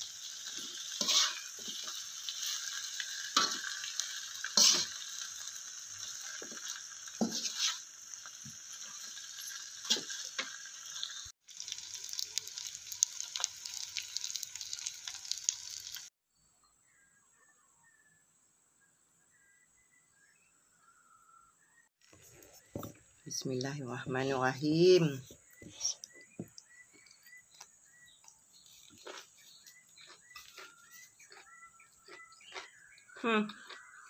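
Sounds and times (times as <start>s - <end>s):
beans sizzling in a wok: 0.0s - 16.1s, 24.1s - 32.9s
metal spatula scraping: 0.2s - 11.1s.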